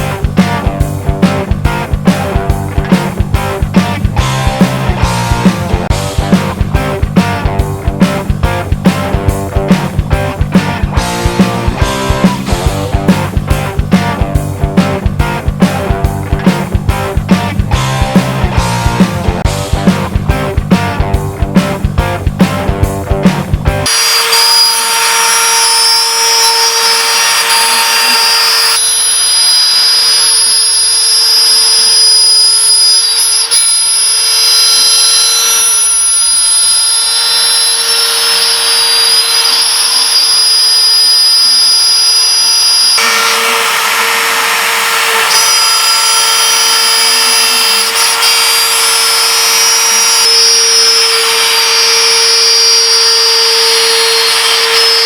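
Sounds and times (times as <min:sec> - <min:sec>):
router spindle whine: 0:23.8 - 0:55.0.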